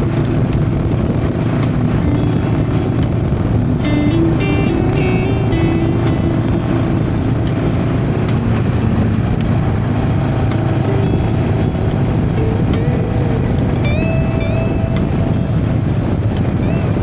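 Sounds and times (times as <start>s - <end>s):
motorcycle engine running: 0.0s - 17.0s
wind and road noise: 0.0s - 17.0s.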